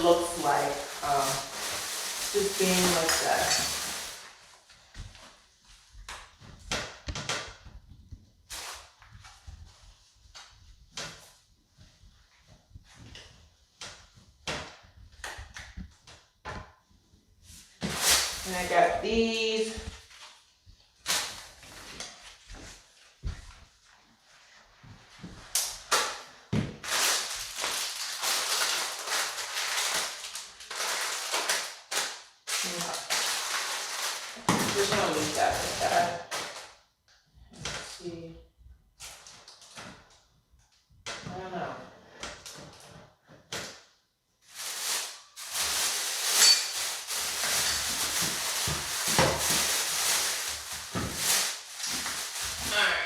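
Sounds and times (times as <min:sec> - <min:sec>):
packaging crinkling: 0:00.0 - 0:04.6, 0:26.8 - 0:36.8, 0:44.5 - 0:52.7
rustling handling noise: 0:00.0 - 0:06.7, 0:15.0 - 0:36.7, 0:44.4 - 0:52.8.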